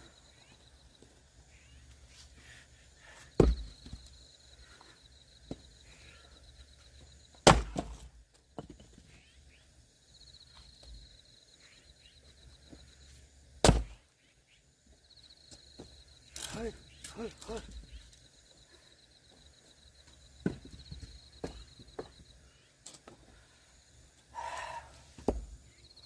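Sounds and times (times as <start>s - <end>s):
axe chopping wood: 3.4s - 4.0s, 7.4s - 8.7s, 13.6s - 14.0s, 25.2s - 25.6s.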